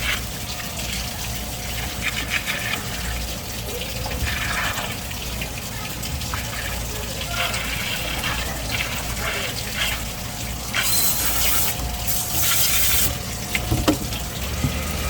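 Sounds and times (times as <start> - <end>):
water running and splashing: 0.0 - 15.0.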